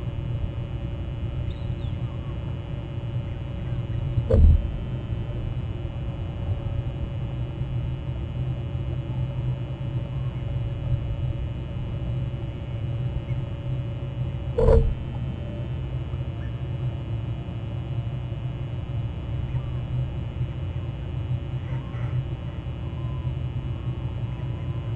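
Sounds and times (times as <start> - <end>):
low rumble: 0.0 - 9.9, 10.6 - 16.3
faint hum: 0.0 - 24.9.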